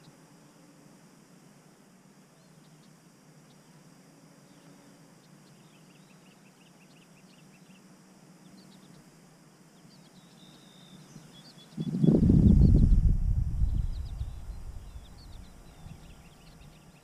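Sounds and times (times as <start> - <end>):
low steady hum: 5.2 - 17.0
faint bird chirps: 9.8 - 17.0.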